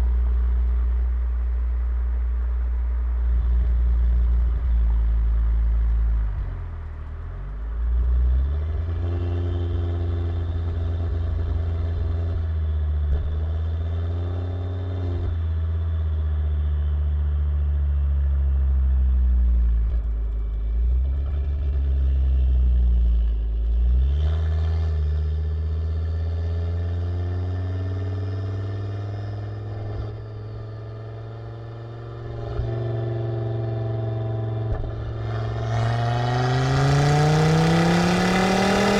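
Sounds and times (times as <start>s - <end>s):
car engine running: 29.4s - 38.9s.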